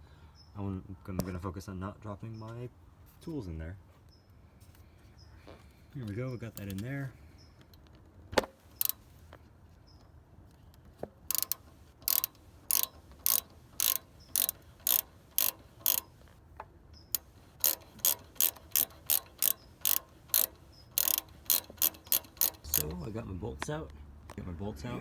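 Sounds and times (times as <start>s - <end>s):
hand ratchet clicking: 8.6s - 9.1s, 11.3s - 16.3s, 17.1s - 23.1s.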